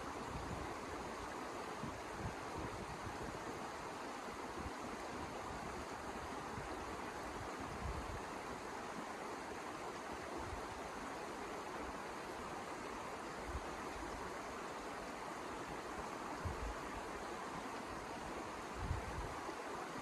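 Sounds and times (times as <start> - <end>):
wind gusts buffeting microphone: 18.7 - 19.3.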